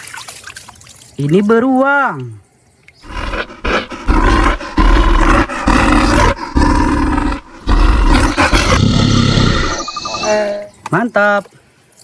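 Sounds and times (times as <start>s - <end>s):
bear growl: 3.0s - 10.6s
bear roaring: 3.0s - 10.6s.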